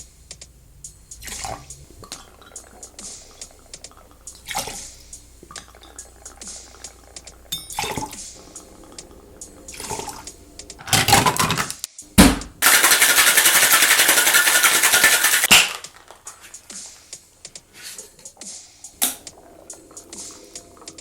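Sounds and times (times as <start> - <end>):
ice and liquid pouring into shaker: 1.2 - 9.1, 9.7 - 10.3, 12.6 - 16.6
ice rattling in shaker: 12.6 - 16.7.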